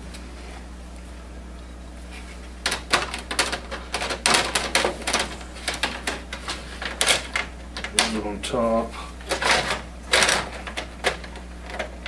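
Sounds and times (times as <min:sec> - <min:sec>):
plastic parts clicking and clattering: 0:02.6 - 0:08.3, 0:09.2 - 0:12.0.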